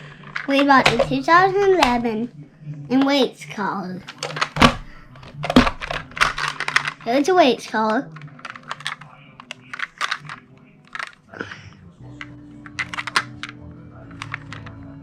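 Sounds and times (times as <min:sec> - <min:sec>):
packaging being handled: 0:04.1 - 0:11.2, 0:12.6 - 0:13.5.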